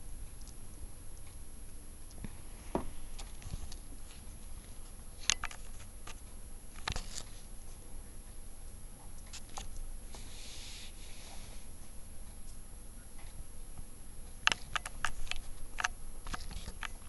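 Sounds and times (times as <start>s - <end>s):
light taps and scratchy clicks: 13.2s - 17.0s.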